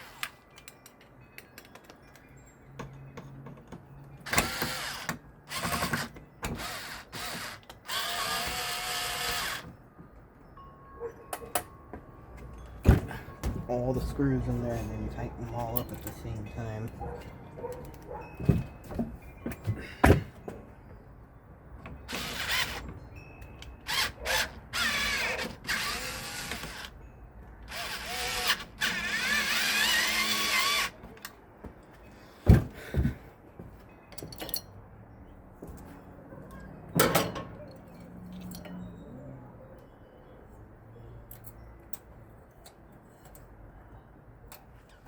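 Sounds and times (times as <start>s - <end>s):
power drill driving screws: 4.2s - 9.7s, 22.1s - 22.8s, 23.8s - 26.9s, 27.7s - 31.0s.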